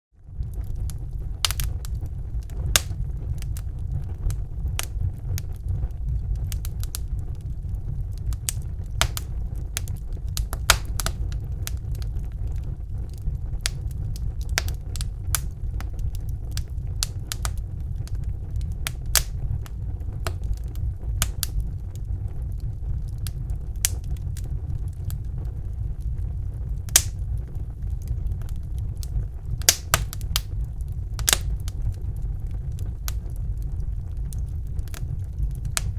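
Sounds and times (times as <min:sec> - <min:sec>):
low rumble of flames: 0:00.1 - 0:35.9
fire popping and crackling: 0:00.2 - 0:35.9.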